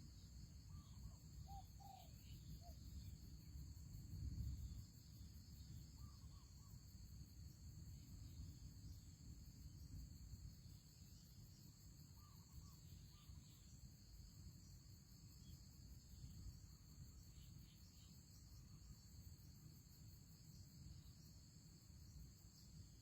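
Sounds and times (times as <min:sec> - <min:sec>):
faint chirps: 0:00.0 - 0:03.2
high insect drone: 0:00.0 - 0:23.0.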